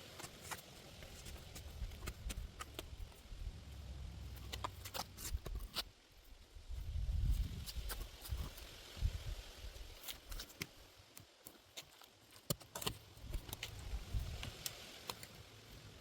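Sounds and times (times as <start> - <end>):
soil and potatoes crackling: 0.0 - 16.0
wind buffeting microphone: 6.7 - 9.8.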